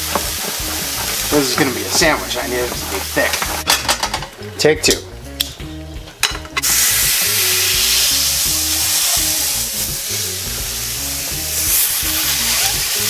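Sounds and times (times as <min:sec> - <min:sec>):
meat sizzling in a hot pan: 0:00.0 - 0:03.7, 0:06.6 - 0:13.0
background music: 0:00.0 - 0:13.0.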